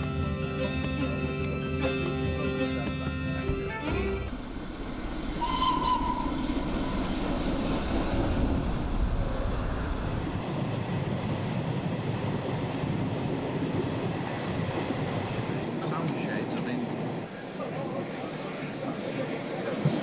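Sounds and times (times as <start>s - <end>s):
moving train rumbling: 0.0s - 20.0s
train whistle: 5.3s - 6.9s.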